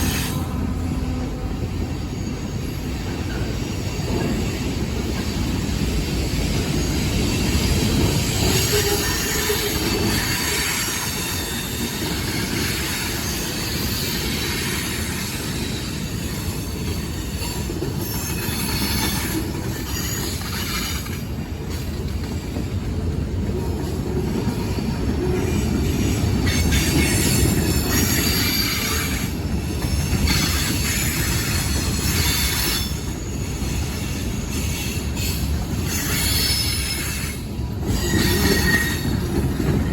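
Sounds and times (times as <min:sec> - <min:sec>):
train rumbling on rails: 0:00.0 - 0:39.9
high-pitched wheel squeal: 0:29.9 - 0:39.3.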